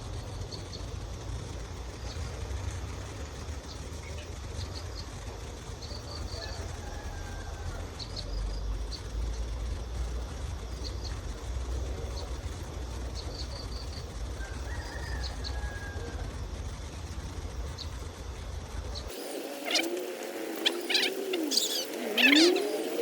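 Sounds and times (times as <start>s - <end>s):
small birds chirping: 0.0s - 6.7s, 10.6s - 16.0s, 17.4s - 23.0s.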